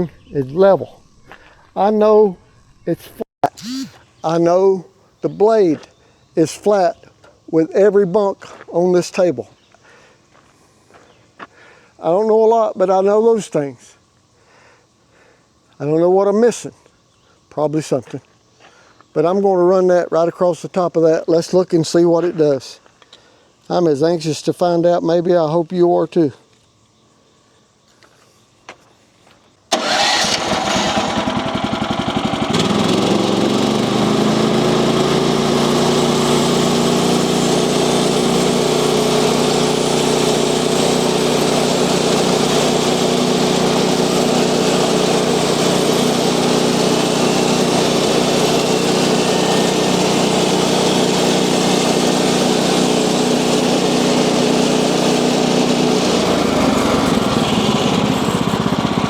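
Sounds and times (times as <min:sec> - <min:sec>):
sawmill gas engine running: 0:03.5 - 0:04.0, 0:29.7 - 0:59.0.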